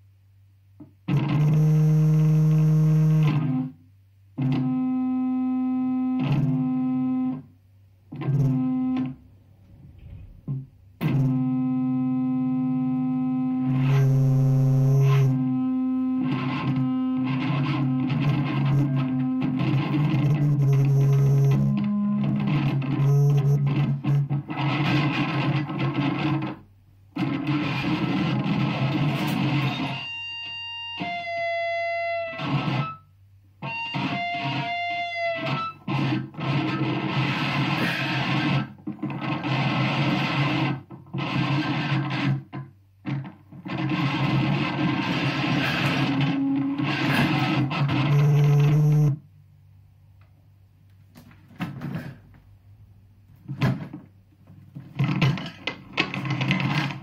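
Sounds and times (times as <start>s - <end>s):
harsh distorted noise: 43.6s - 49.1s.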